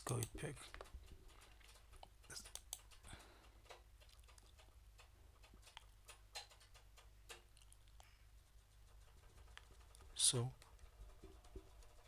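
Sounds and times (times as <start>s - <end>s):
computer mouse and keyboard clicks: 0.0s - 8.0s.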